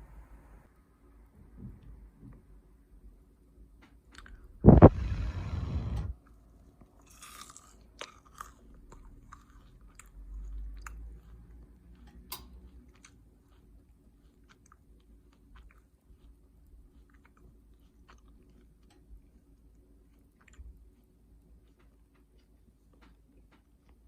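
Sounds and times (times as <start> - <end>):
crunchy bite and chewing: 6.2 - 22.6.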